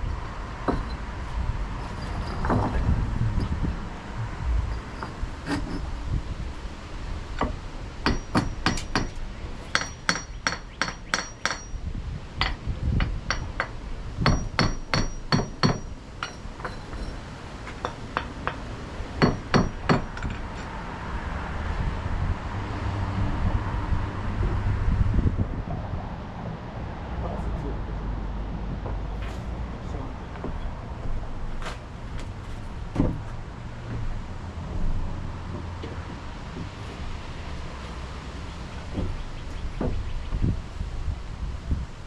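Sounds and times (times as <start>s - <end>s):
hammer blows with metallic ring: 8.1s - 11.8s, 12.4s - 17.2s.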